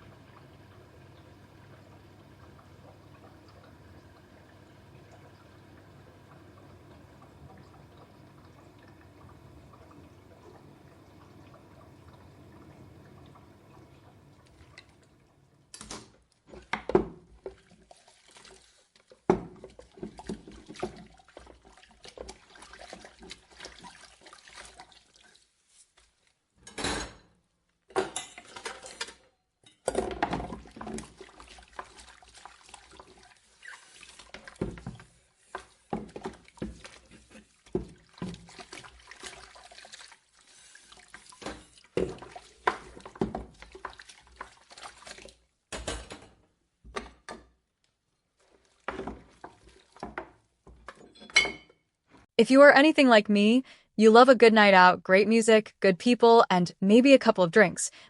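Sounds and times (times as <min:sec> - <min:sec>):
dishwasher humming: 0:00.0 - 0:15.7
water sloshing and splashing: 0:00.0 - 0:26.4, 0:28.2 - 0:29.1, 0:29.9 - 0:46.2, 0:48.3 - 0:51.4
dishes clattering: 0:26.6 - 0:30.6, 0:45.7 - 0:46.4, 0:50.8 - 0:51.8.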